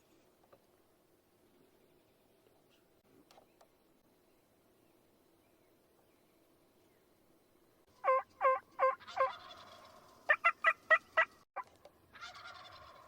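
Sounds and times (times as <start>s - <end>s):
turkey gobbling: 8.0s - 13.0s
turkey yelping: 8.0s - 13.0s.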